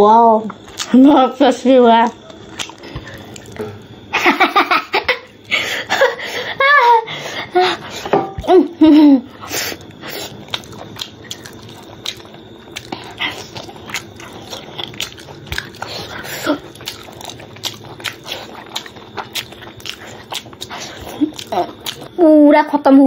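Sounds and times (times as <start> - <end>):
wet chewing and lip smacks: 0.5 - 1.0, 2.0 - 3.9, 9.7 - 22.2.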